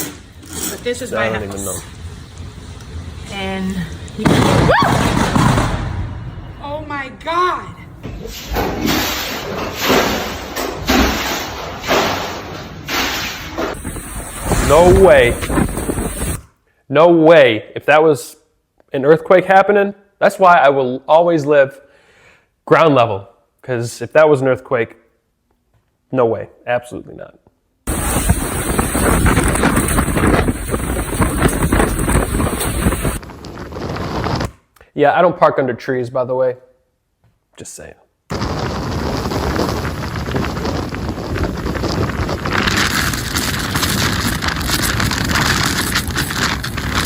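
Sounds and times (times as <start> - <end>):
rain: 0.9 - 4.9, 12.6 - 16.4, 27.9 - 34.5, 38.3 - 47.0
loud crashes and bangs: 4.2 - 6.7, 8.0 - 16.4
wind buffeting microphone: 13.7 - 16.5, 27.9 - 34.6, 38.3 - 47.0
small crackles and knocks: 27.9 - 34.6, 39.6 - 47.0.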